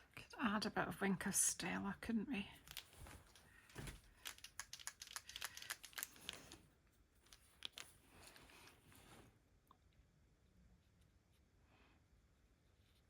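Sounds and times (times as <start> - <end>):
faint rustling: 2.6 - 4.6
light clicks and ticks: 2.6 - 6.6, 7.2 - 8.8.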